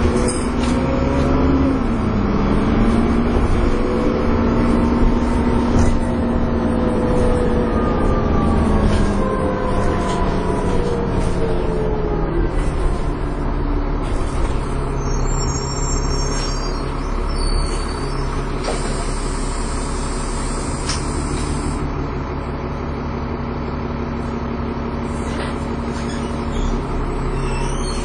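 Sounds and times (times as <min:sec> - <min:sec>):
bus engine running: 0:00.0 - 0:28.0
air brake hiss: 0:18.6 - 0:21.8.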